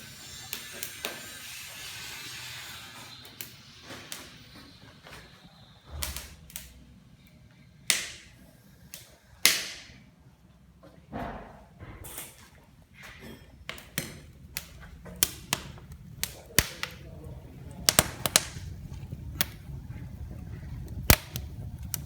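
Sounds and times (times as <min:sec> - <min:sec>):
wood fire crackling: 0:00.0 - 0:22.0
sharp pops from fire: 0:00.2 - 0:06.8, 0:07.8 - 0:10.0, 0:13.6 - 0:22.0.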